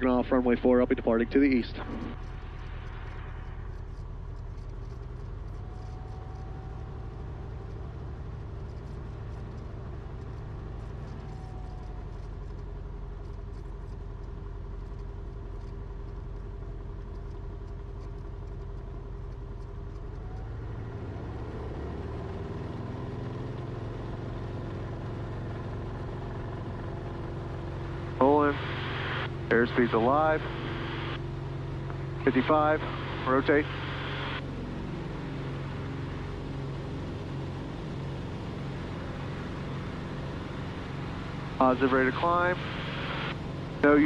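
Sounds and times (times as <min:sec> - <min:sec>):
light aircraft engine running: 0:00.0 - 0:44.0.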